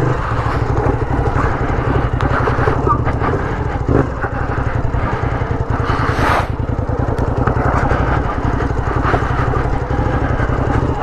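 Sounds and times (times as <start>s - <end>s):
motorcycle engine running: 0.0s - 11.0s
rush of hiss: 6.0s - 6.6s.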